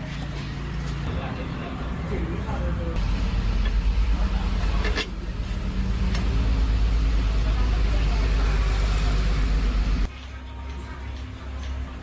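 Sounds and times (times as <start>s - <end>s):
engine deep rumble: 0.8s - 10.1s.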